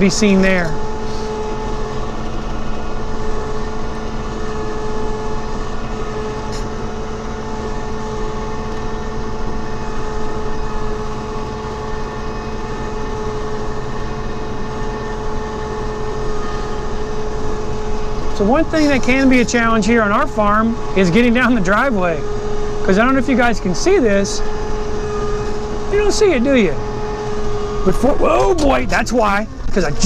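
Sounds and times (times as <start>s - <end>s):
farm vehicle engine running: 0.0s - 30.0s.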